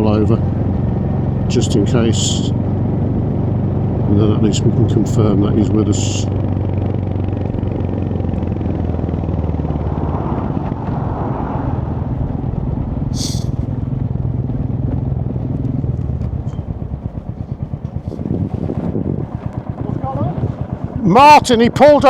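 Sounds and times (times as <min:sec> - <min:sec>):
motorcycle engine idling: 0:00.0 - 0:09.5, 0:11.9 - 0:22.0
brief hiss: 0:13.2 - 0:13.7.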